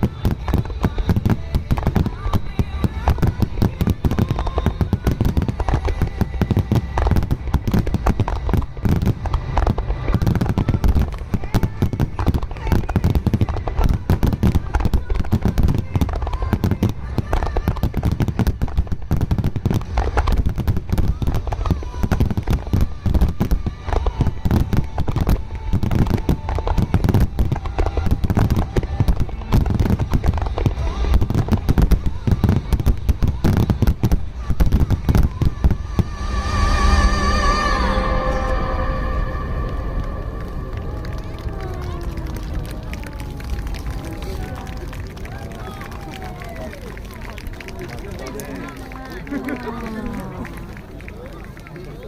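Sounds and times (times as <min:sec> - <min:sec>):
low rumble: 0:00.0 - 0:15.1, 0:23.6 - 0:47.7
faint music: 0:00.0 - 0:52.0
fireworks bursts and crackles: 0:00.0 - 0:52.0.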